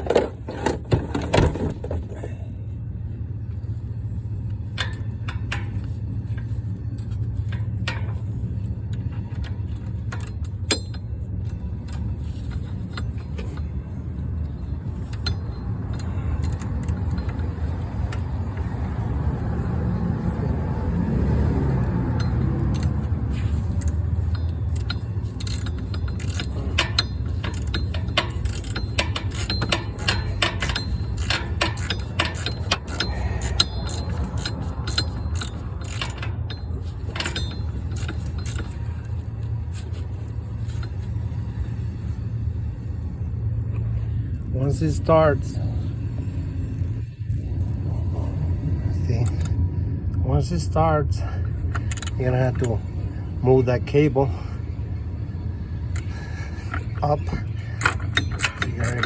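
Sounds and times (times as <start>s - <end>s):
steady low rumble: 0.0s - 59.0s
socket ratchet clicking: 21.8s - 39.2s, 57.8s - 59.0s
metallic tool clicks: 57.8s - 59.0s.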